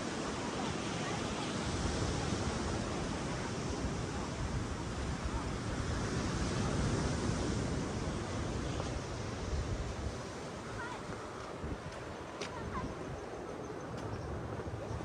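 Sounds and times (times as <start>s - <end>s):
ocean waves on beach: 0.0s - 15.0s
wind on microphone: 0.0s - 15.0s.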